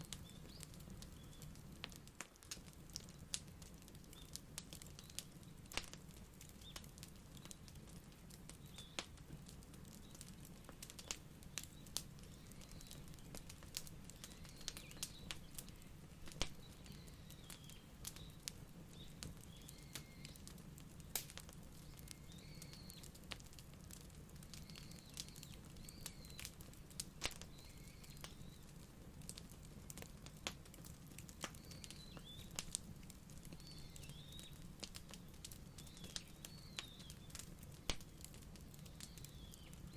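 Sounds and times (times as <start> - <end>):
small birds chirping: 0.0 - 39.9
wood fire crackling: 0.0 - 39.9.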